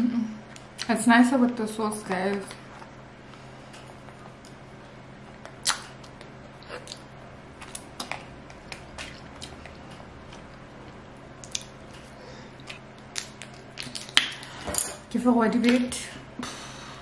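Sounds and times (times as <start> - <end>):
faint steady hum: 0.0 - 17.0
person chewing food: 5.3 - 14.6
wet mouth clicks and smacks: 5.4 - 9.8, 11.4 - 11.8, 12.6 - 14.5.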